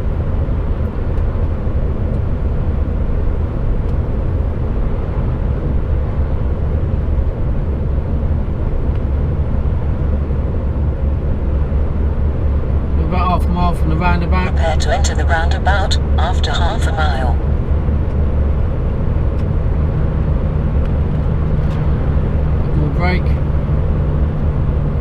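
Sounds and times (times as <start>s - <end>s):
truck diesel engine rumble: 12.8s - 17.4s.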